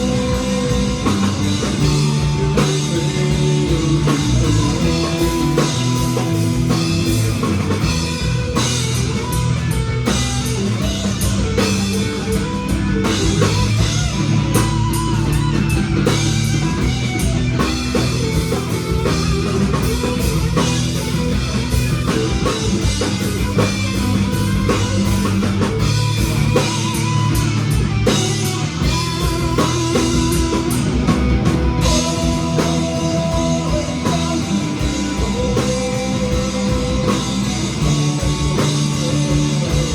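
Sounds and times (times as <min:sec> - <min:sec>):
drum kit beat: 0:00.0 - 0:39.9
electric guitars: 0:00.0 - 0:39.9.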